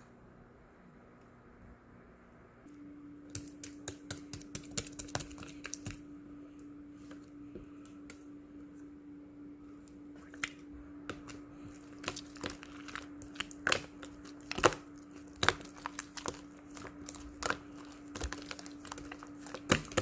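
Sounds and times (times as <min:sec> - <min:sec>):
low steady hum: 0:00.0 - 0:20.0
slime crackling and popping: 0:11.2 - 0:20.0.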